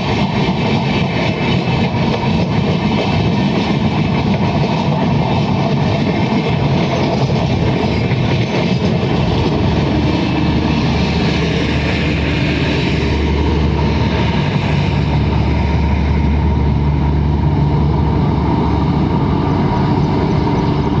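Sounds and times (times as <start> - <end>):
express train rumbling: 0.0 - 21.0
low engine drone: 7.0 - 21.0.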